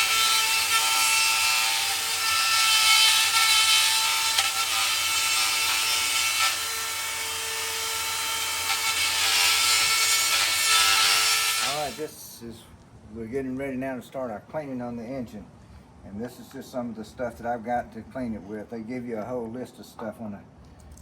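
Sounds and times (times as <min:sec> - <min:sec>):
power grinder whining: 0:00.0 - 0:12.0.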